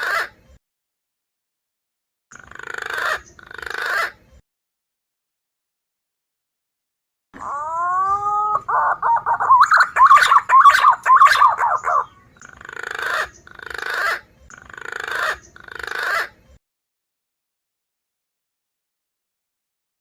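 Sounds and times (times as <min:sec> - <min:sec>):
pigeon calls from recording: 0:02.4 - 0:04.2, 0:07.4 - 0:16.4
raspy rising calls: 0:07.4 - 0:12.3
fast warbling whistled notes: 0:07.6 - 0:12.1.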